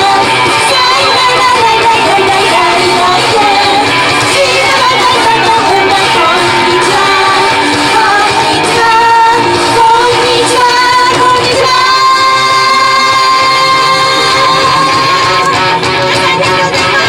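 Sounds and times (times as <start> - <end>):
female group singing: 0.0 - 17.0
upbeat pop backing track: 0.0 - 17.0.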